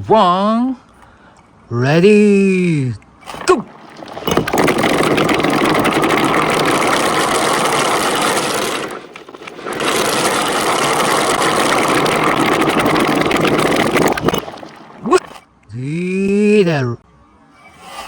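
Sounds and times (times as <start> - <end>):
marbles rattling down a track: 3.3 - 15.3.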